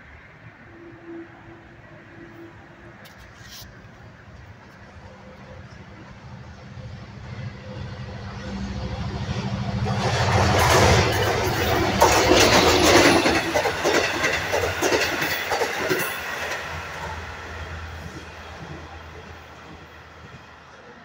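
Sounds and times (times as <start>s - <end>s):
train rushing past: 4.0s - 21.0s
wheels clattering over rail joints: 9.2s - 20.9s.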